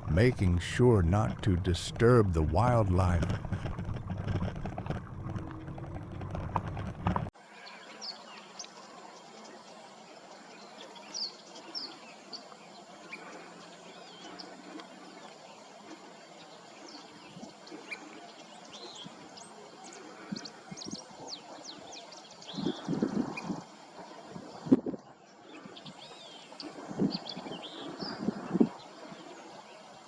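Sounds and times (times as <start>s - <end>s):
steady outdoor hiss: 0.0s - 5.4s, 6.0s - 30.0s
rough rumble: 0.0s - 7.3s.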